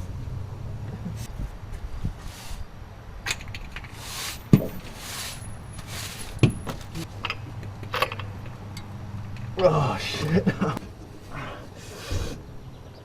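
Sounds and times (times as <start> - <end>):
metallic clinks and knocks: 6.4 - 9.5.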